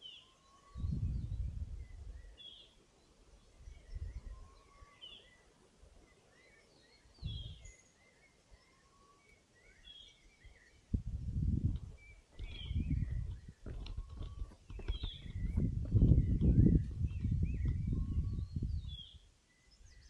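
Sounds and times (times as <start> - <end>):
thin whistled bird notes: 0.0 - 10.9, 11.8 - 20.0
forest birds chirping: 0.0 - 20.0
low thumping rumbles: 11.0 - 18.9.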